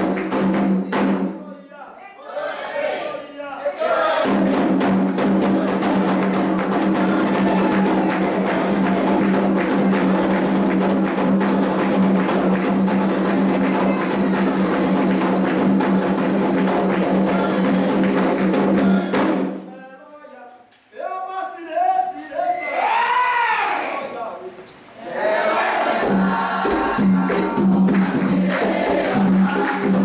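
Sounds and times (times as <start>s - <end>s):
fast hand drumming: 0.0s - 1.4s, 4.2s - 19.6s, 26.0s - 30.0s.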